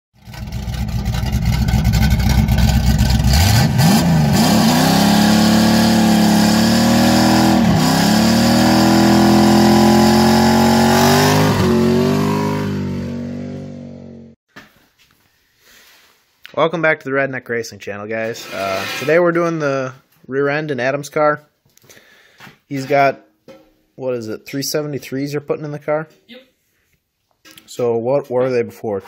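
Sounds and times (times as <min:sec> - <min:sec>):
car engine revving: 0:00.2 - 0:14.4.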